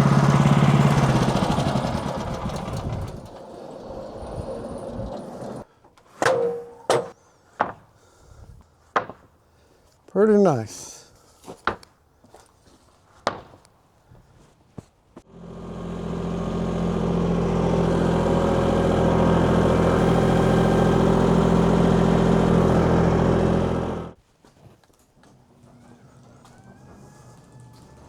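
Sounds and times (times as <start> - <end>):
engine running steadily: 0.0 - 5.6, 15.3 - 24.2.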